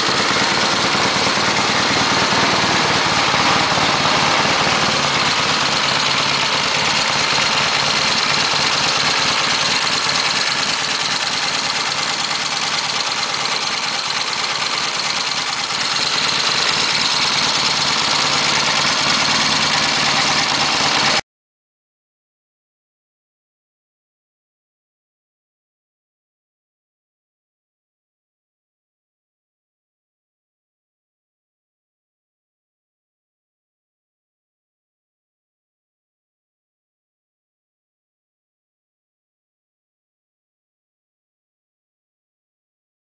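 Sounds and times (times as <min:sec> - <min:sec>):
motorcycle engine running: 0:00.0 - 0:21.2.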